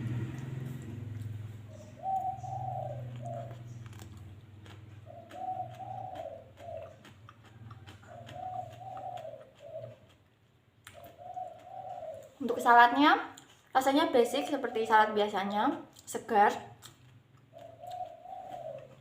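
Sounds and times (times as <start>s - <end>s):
dove cooing: 1.6s - 3.8s, 4.9s - 10.2s, 10.9s - 12.7s, 17.5s - 19.0s.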